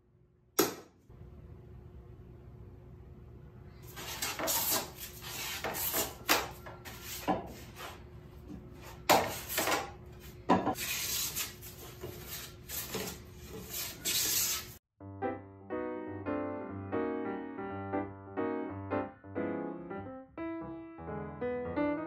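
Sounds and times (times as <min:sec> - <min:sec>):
hand plane shaving wood: 0:10.8 - 0:14.8.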